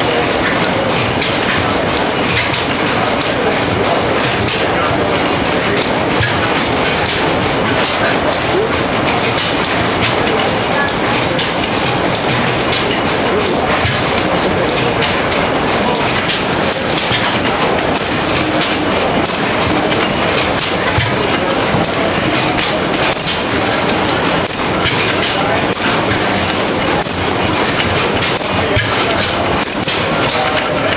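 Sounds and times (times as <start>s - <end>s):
stationary engine clattering: 0.0s - 30.9s.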